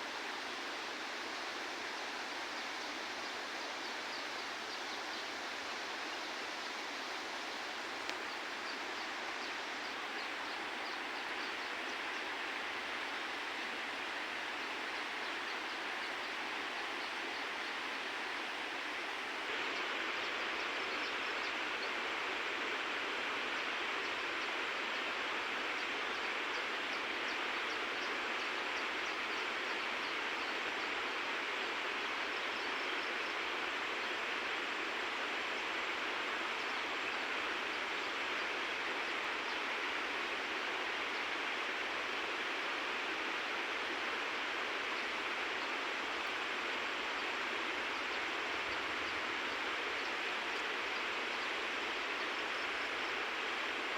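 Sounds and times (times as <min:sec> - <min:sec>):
river water rushing: 0:00.1 - 0:20.2.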